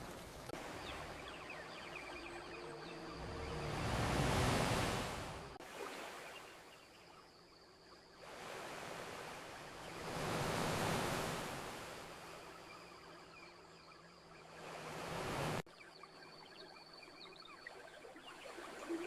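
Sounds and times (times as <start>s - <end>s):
ocean waves breaking on beach: 0.0s - 6.7s, 8.2s - 12.7s, 14.4s - 15.6s.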